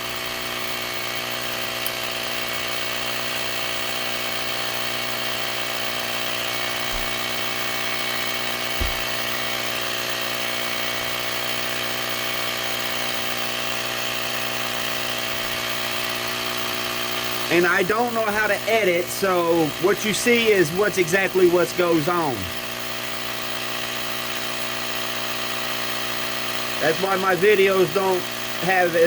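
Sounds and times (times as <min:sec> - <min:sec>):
small electric compressor running: 0:00.0 - 0:29.0
soft knock: 0:08.8 - 0:09.1.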